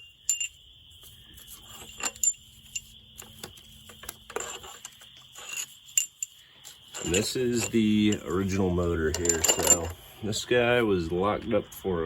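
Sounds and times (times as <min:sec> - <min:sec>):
metal bolts and tools clinking: 0:00.0 - 0:00.6, 0:01.4 - 0:10.0.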